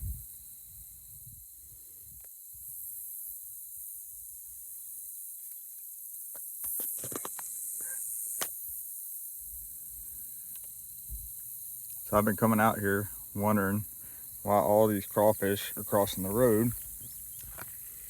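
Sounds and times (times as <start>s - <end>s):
wind rumble on microphone: 0.0s - 2.8s
high-pitched insect chorus: 0.0s - 18.0s.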